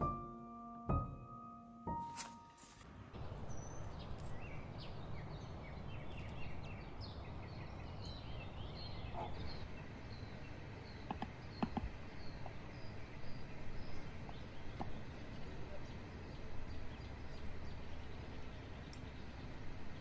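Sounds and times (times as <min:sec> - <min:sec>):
low outdoor hum: 0:02.2 - 0:20.0
small bird chirping: 0:03.2 - 0:15.2.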